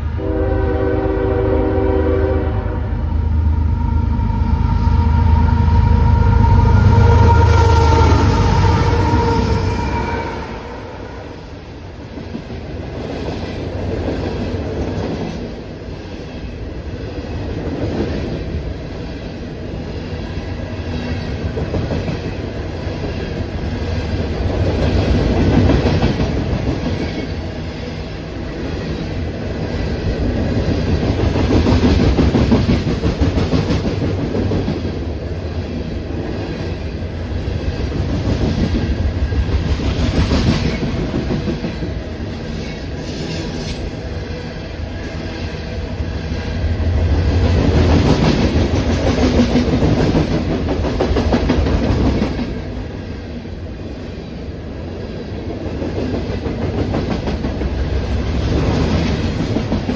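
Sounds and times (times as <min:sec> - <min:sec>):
train wheels clattering on rails: 0:12.0 - 0:42.1, 0:47.2 - 0:52.9, 0:54.9 - 0:59.9.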